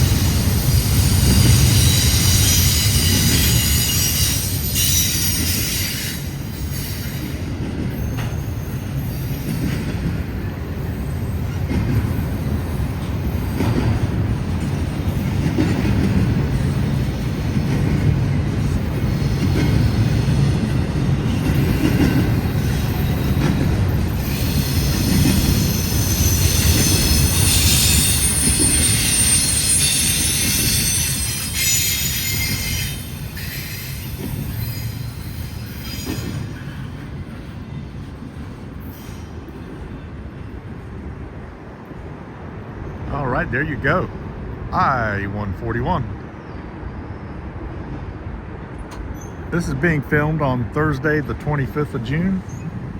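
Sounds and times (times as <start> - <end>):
train wheels rumbling on rail: 0.0 - 52.9
high-pitched wheel squeal: 1.0 - 7.4, 24.2 - 36.8.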